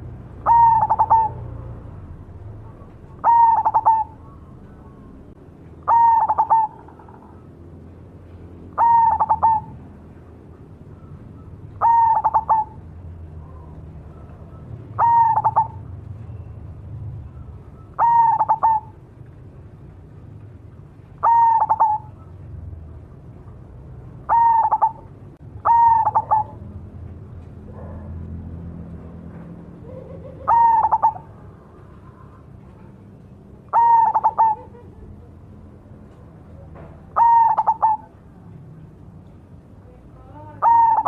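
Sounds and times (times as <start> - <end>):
dove cooing: 0.0 - 7.5, 8.7 - 9.9, 10.9 - 16.0, 17.4 - 19.0, 21.2 - 22.5, 24.2 - 26.8, 29.7 - 35.4, 36.6 - 38.2, 40.4 - 41.0.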